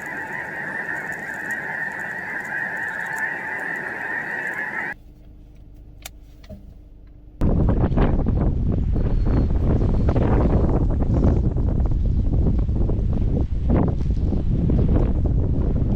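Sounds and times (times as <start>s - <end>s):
flock of geese honking: 0.0s - 5.0s
wind buffeting microphone: 7.4s - 15.9s.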